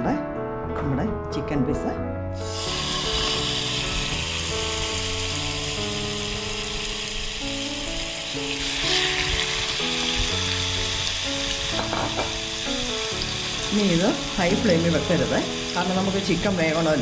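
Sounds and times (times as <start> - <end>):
background music melody: 0.0 - 17.0
chicken sizzling in frying pan: 2.4 - 17.0.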